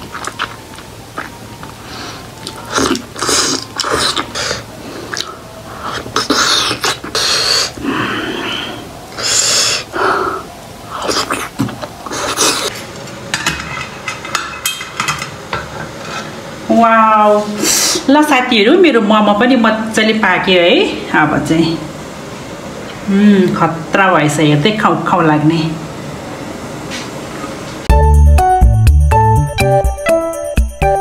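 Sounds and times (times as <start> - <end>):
person chewing and smacking lips: 0.0 - 1.8, 2.4 - 7.3.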